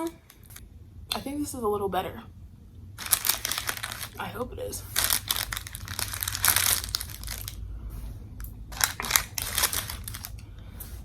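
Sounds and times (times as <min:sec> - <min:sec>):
crunching of sandwich being eaten: 0:04.9 - 0:07.6, 0:08.7 - 0:11.0.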